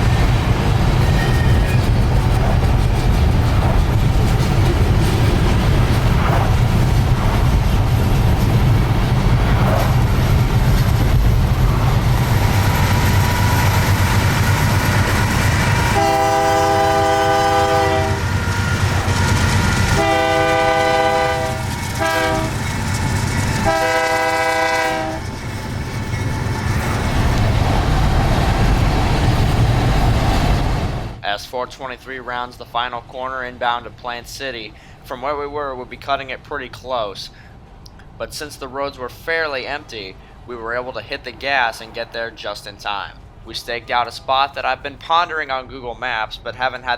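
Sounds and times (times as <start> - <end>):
train rumble on rails: 0.0 - 31.2, 32.2 - 46.9
train air horn blasts: 15.5 - 19.0, 19.6 - 22.6, 23.6 - 25.3.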